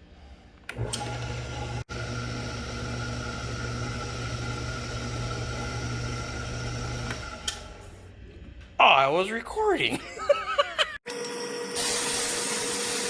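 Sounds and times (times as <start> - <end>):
power tool humming: 0.7 - 7.7.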